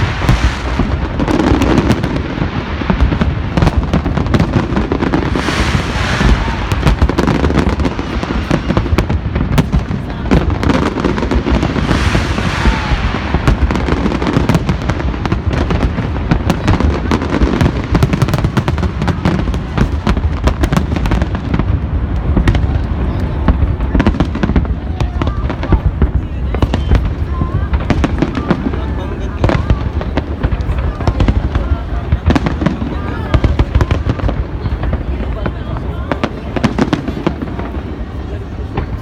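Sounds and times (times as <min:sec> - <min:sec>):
fireworks bangs and crackles: 0:00.0 - 0:39.0.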